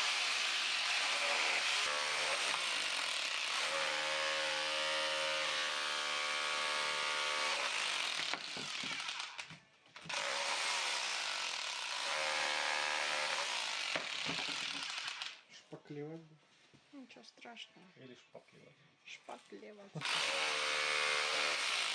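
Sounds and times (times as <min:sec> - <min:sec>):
power tool whining against brick: 0:00.0 - 0:15.4, 0:20.0 - 0:21.9.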